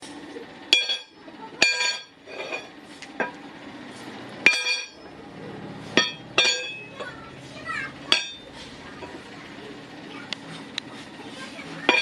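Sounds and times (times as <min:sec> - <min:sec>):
hammer striking steel anvil: 0:04.4 - 0:05.0, 0:06.0 - 0:06.8, 0:08.1 - 0:08.4.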